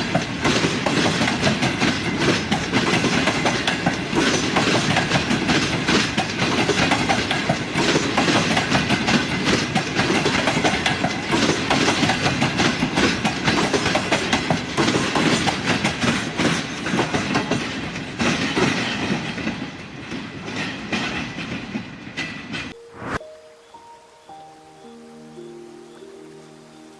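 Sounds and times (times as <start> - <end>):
train wheels clattering: 0.0 - 22.9.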